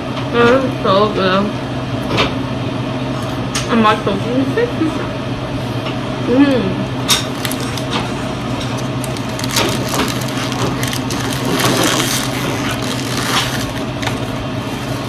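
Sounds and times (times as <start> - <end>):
chewing a burger: 7.2 - 15.0
paper wrapper crinkling: 7.2 - 15.0.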